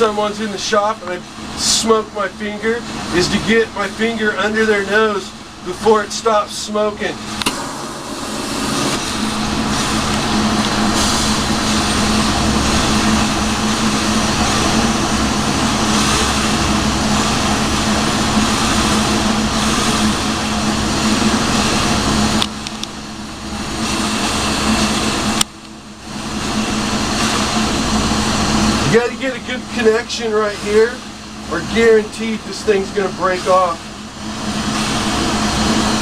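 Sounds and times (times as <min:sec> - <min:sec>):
torch flame roaring: 0:07.0 - 0:36.0
low hum: 0:07.1 - 0:21.2.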